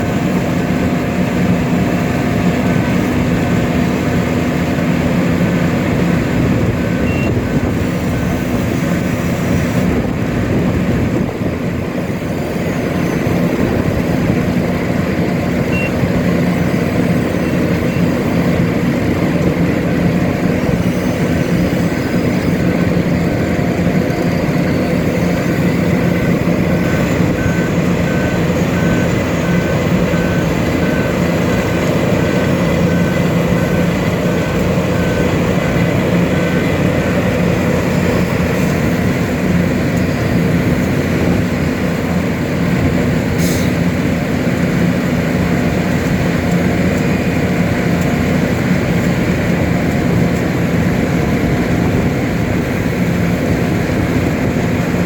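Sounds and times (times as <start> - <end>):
reversing alarm beeping: 0.0 - 9.8, 11.2 - 41.5
heavy machinery diesel engines: 0.0 - 55.0.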